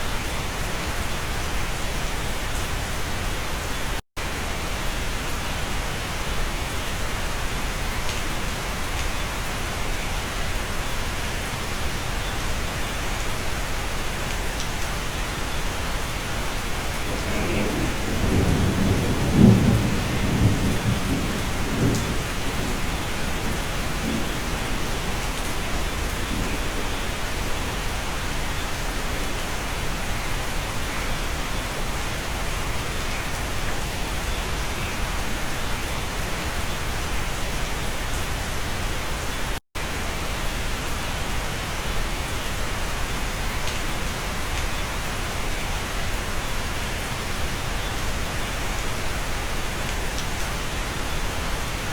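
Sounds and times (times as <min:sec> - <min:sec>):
steady rain: 0:00.0 - 0:51.9
thunder rumbling: 0:16.6 - 0:28.2.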